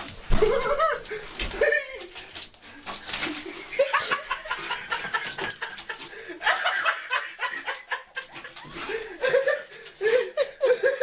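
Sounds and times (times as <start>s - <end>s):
people laughing and snickering: 3.4s - 11.0s.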